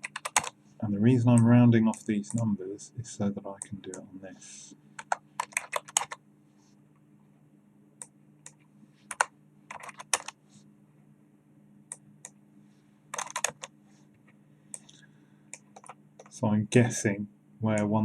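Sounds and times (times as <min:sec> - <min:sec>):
keyboard keys tapping: 0:00.0 - 0:00.5, 0:05.0 - 0:06.2, 0:08.4 - 0:10.4, 0:13.1 - 0:13.7, 0:15.5 - 0:16.4
steady low hum: 0:00.0 - 0:18.0.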